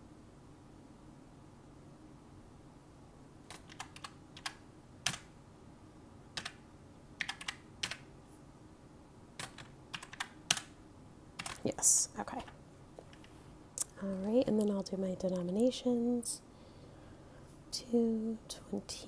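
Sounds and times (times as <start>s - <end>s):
calculator keys clicking: 3.5s - 5.2s, 7.2s - 8.0s, 9.4s - 10.7s, 11.4s - 11.7s.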